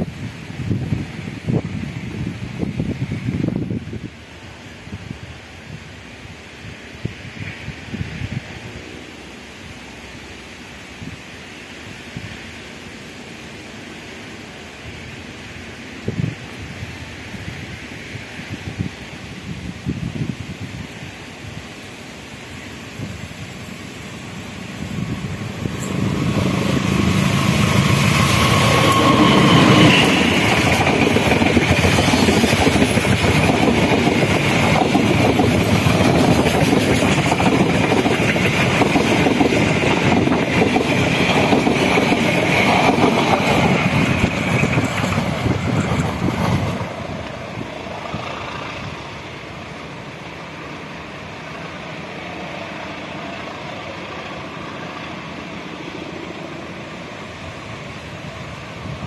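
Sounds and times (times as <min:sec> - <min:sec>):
diesel locomotive engine: 0:00.0 - 0:59.0
train wheels on rails: 0:00.0 - 0:59.0.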